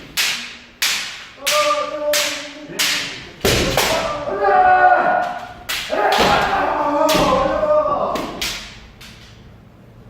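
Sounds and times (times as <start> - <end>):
bamboo swords cracking: 0.0 - 4.2, 5.2 - 9.4
person shouting: 3.8 - 8.4.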